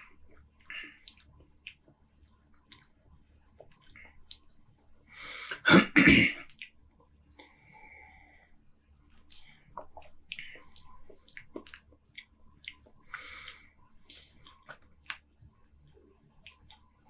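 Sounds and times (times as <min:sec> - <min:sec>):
mouth and swallowing clicks: 0:00.6 - 0:01.9, 0:09.3 - 0:15.2, 0:16.4 - 0:16.8
man clearing throat: 0:05.5 - 0:06.4.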